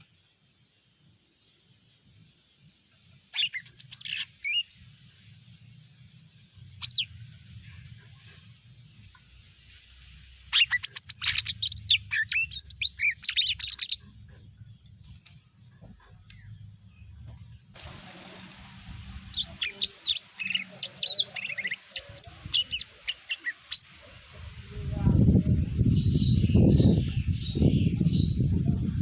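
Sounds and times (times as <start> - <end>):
bird singing rapid high notes: 19.3 - 23.9.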